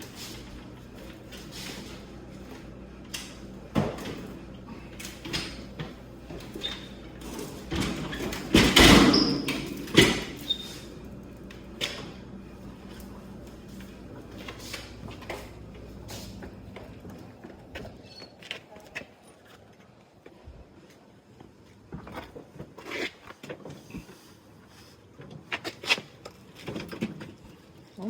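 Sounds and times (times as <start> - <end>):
refrigerator knocks and scrapes: 5.4 - 10.9.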